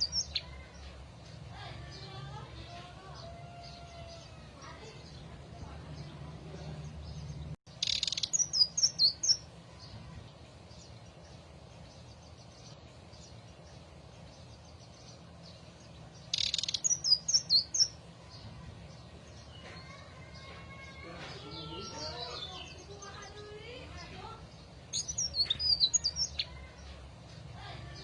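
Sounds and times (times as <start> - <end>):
faint bird chirps: 7.8 - 10.9, 16.3 - 18.7.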